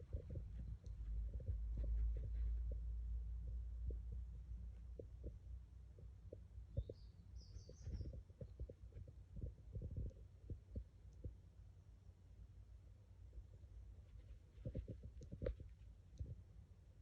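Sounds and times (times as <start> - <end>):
soft irregular thumps: 0.0 - 11.7, 13.2 - 16.7
faint low rumble: 0.0 - 17.0
high bird chirp: 6.8 - 8.2.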